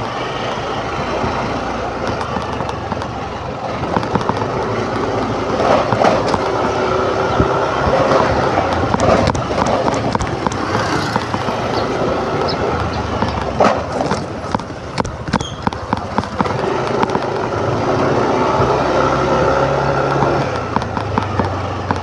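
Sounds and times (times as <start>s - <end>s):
motor scooter engine: 0.0s - 22.0s
rattling knocks: 5.6s - 17.4s.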